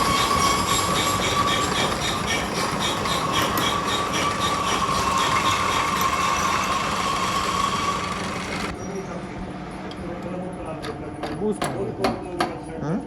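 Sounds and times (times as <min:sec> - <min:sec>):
rhythmic machine clatter: 0:00.0 - 0:08.7
machinery humming: 0:00.0 - 0:08.8.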